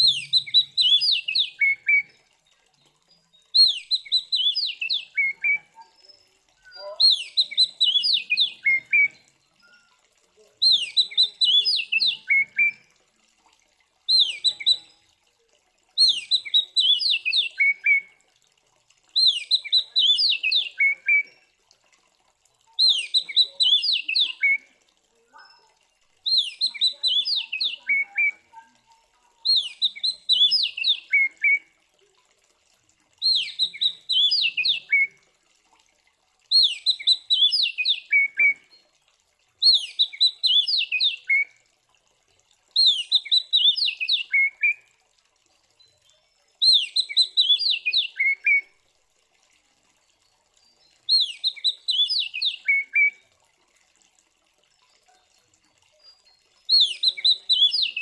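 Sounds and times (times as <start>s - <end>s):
magpie-robin singing: 0.0s - 2.1s, 3.5s - 9.9s, 10.6s - 12.8s, 14.1s - 15.0s, 16.0s - 18.0s, 19.2s - 21.4s, 22.8s - 24.6s, 25.4s - 28.7s, 29.4s - 31.6s, 33.2s - 35.1s, 36.5s - 38.5s, 39.6s - 41.4s, 42.8s - 44.8s, 46.6s - 48.6s, 51.1s - 53.1s, 56.7s - 58.0s.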